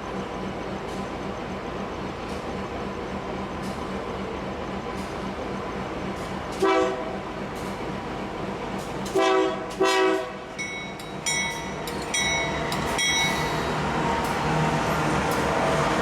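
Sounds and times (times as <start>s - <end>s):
locomotive horn blasts: 6.6s - 7.1s, 9.1s - 10.4s.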